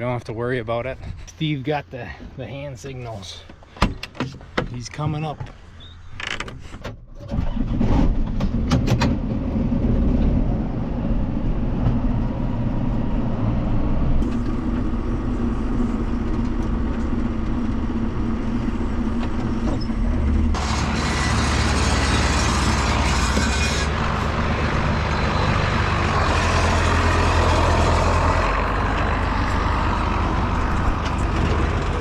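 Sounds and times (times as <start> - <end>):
tractor engine running: 3.1 - 32.0
clunks: 19.0 - 26.6.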